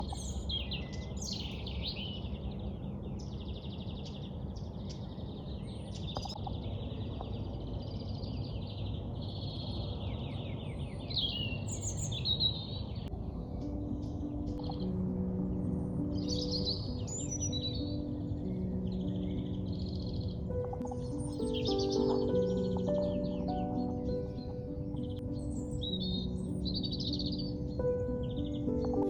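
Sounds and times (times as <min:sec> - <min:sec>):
birds singing and chirping: 0:00.0 - 0:29.0.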